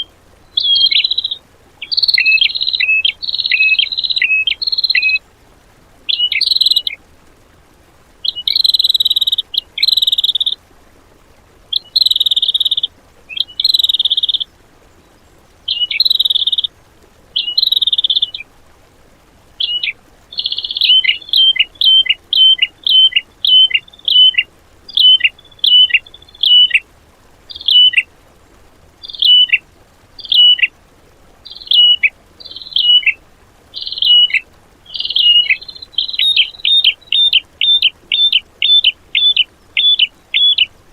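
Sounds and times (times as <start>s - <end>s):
bird whistled downward-slurred notes: 0.0s - 5.2s, 6.1s - 6.9s, 15.7s - 16.7s, 19.6s - 26.8s, 27.5s - 28.1s, 29.0s - 29.6s, 30.2s - 30.7s, 31.5s - 33.2s, 33.8s - 40.7s
songbird buzzy trilled phrases: 0.0s - 5.3s, 6.1s - 7.0s, 8.2s - 10.6s, 11.7s - 18.4s, 19.5s - 30.8s, 31.4s - 40.9s.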